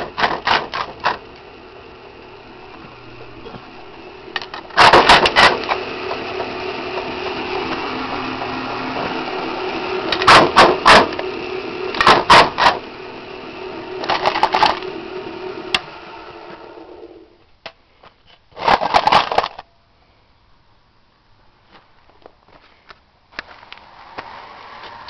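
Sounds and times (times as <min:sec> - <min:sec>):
crusher motor hum: 0:00.0 - 0:17.4.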